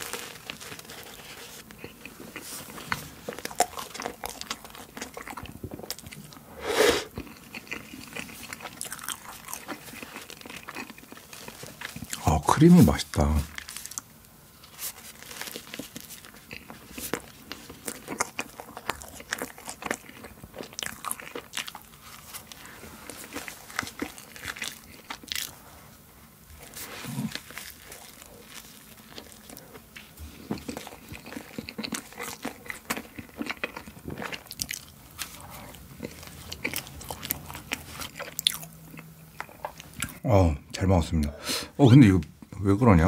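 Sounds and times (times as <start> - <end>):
biting and chewing pastry: 0.0 - 40.2.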